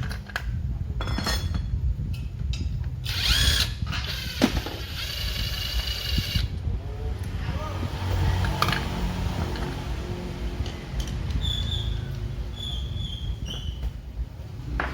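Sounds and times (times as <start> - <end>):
power tool whining: 3.0 - 6.5.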